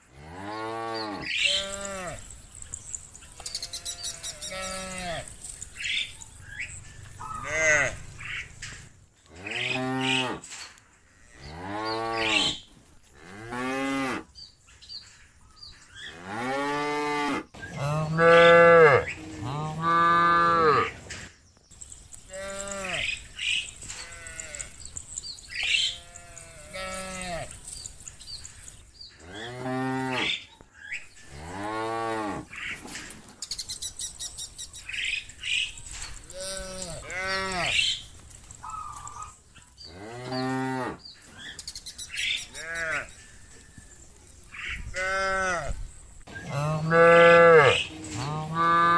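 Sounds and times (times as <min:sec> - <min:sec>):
cattle mooing: 0:03.5 - 0:05.4, 0:07.1 - 0:08.6, 0:09.4 - 0:10.5, 0:16.2 - 0:20.9, 0:22.3 - 0:27.6, 0:46.5 - 0:48.9.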